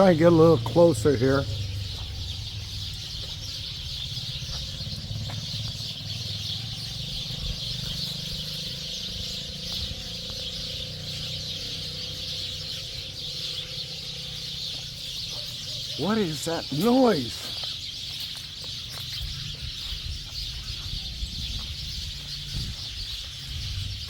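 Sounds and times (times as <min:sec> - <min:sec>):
flock of birds chattering: 0:00.0 - 0:24.0
low rumble: 0:00.6 - 0:11.0.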